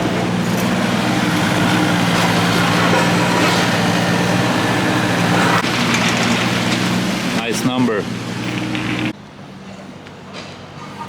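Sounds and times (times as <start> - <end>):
machine humming: 0.0 - 9.2.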